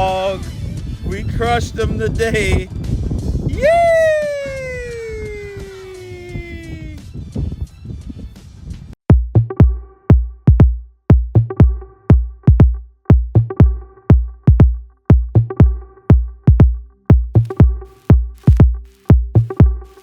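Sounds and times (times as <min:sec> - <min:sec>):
electronic dance music: 0:17.3 - 0:20.0.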